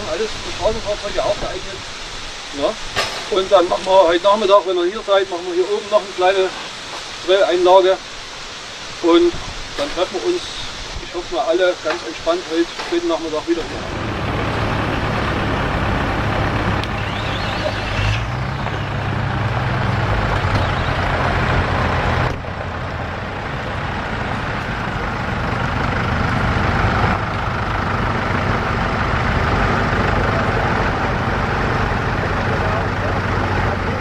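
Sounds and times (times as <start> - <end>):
engines running at low revs: 9.4 - 34.0.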